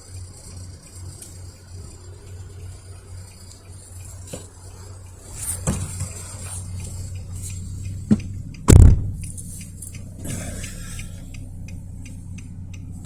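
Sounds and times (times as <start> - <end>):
loud low thump: 8.1 - 9.3
clanks and knocks: 8.1 - 9.4.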